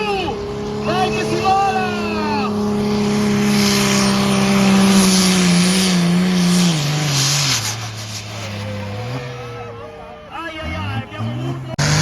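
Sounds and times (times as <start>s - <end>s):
tractor engine at high revs: 0.0s - 12.0s
hiss of noise: 6.5s - 8.8s.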